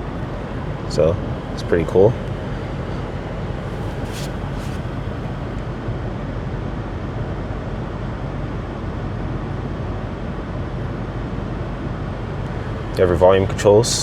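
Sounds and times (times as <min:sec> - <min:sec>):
car engine idling: 0:00.0 - 0:05.8, 0:12.2 - 0:14.0.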